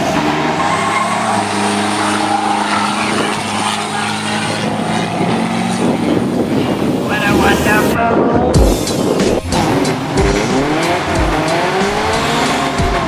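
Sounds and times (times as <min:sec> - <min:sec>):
diesel engine revving high: 0:00.0 - 0:08.0, 0:08.6 - 0:13.0.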